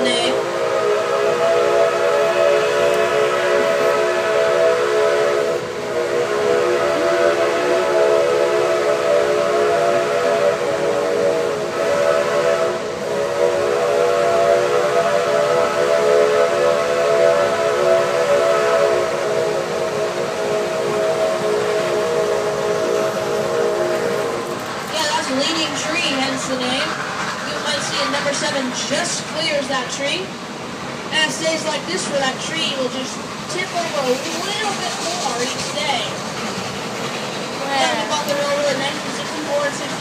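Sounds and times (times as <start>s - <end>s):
steam locomotive chime whistle: 0.0s - 26.7s.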